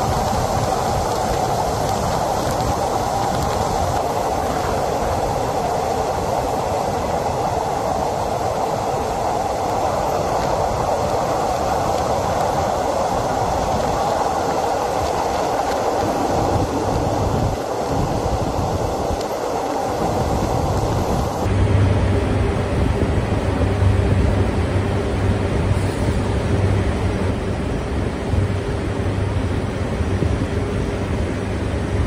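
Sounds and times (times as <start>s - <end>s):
train running through tunnel: 0.0s - 32.0s
steady low hum: 20.0s - 32.0s.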